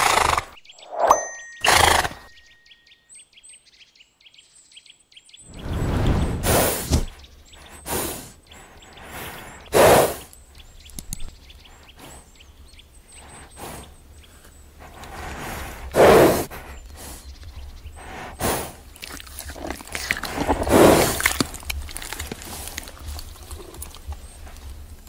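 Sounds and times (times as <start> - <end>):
small birds chirping: 0.0 - 25.0
low rumble: 5.5 - 7.2.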